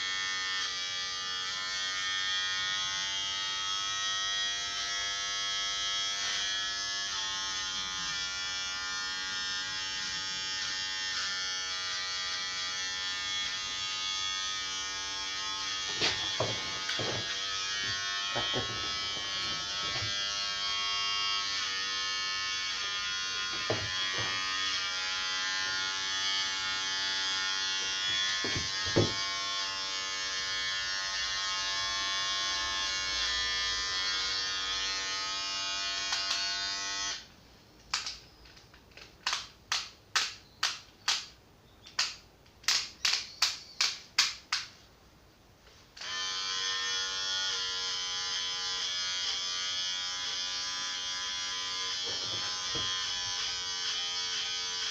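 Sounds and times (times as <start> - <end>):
electric hair clippers buzzing: 0.0 - 37.3, 45.9 - 54.9
sharp clicks: 37.8 - 44.8.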